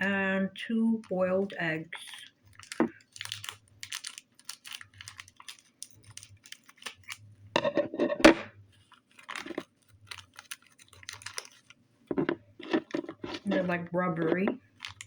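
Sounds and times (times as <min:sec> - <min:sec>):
plastic toys clicking and rustling: 0:02.0 - 0:15.0
plastic clatter: 0:02.5 - 0:08.5, 0:09.1 - 0:15.0.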